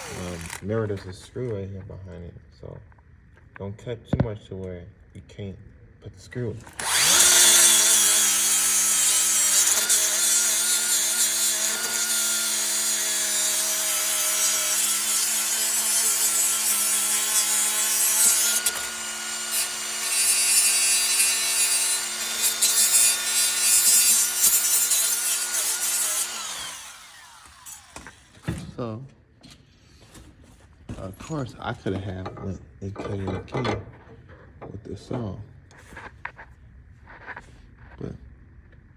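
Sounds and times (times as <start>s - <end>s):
electric grinder grinding metal: 0.0s - 0.7s, 6.7s - 28.3s.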